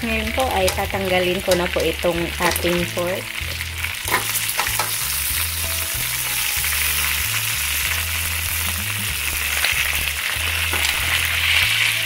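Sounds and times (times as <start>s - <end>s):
meat sizzling in hot oil: 0.0s - 12.0s
metal tongs clicking on pan: 0.6s - 2.7s, 4.1s - 5.0s.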